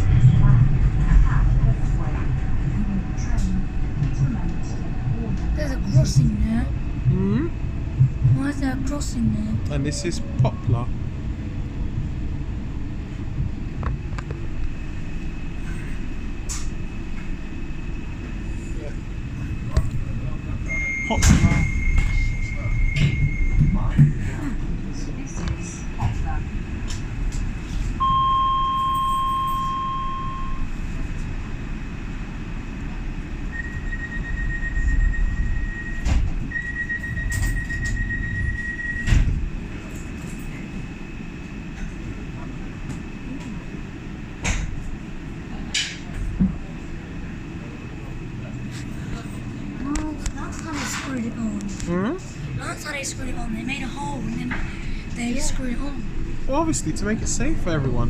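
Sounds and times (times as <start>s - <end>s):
high whine: 0.0s - 58.0s
train rumbling: 0.0s - 58.0s
high wheel squeal: 20.6s - 24.0s, 33.5s - 39.1s.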